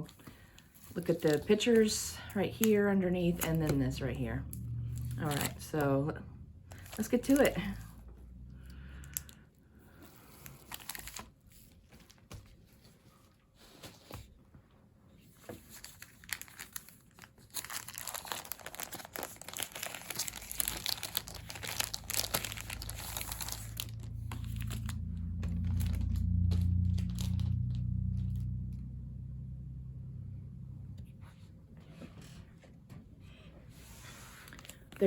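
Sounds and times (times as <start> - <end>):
plastic packaging crinkling: 0.0 - 4.2, 5.0 - 5.8, 6.7 - 7.9, 10.0 - 12.8, 15.5 - 28.6, 34.4 - 35.0
low rumbling hum: 0.0 - 11.2, 17.5 - 35.0.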